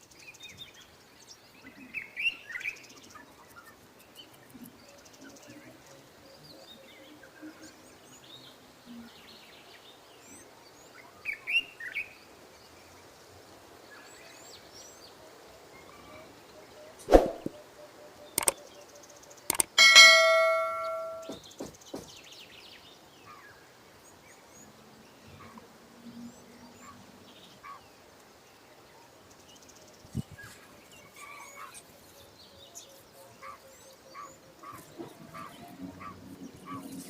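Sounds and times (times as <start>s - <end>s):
sharp knocks: 19.5s - 21.7s
birds chirping: 19.5s - 22.0s.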